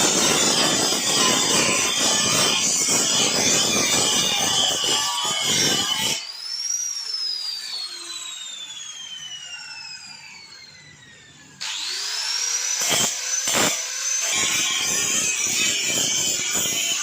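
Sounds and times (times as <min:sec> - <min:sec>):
grinder disc on metal: 0:00.0 - 0:06.2, 0:12.7 - 0:17.0
angle grinder whining: 0:00.0 - 0:17.0.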